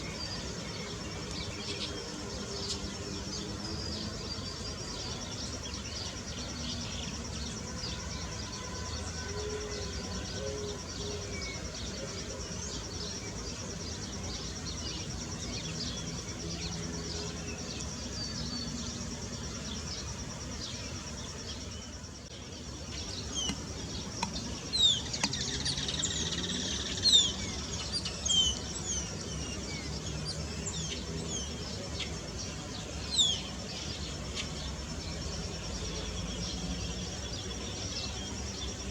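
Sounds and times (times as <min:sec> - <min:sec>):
small birds chirping: 0:12.6 - 0:38.9
insect trilling: 0:18.7 - 0:30.5.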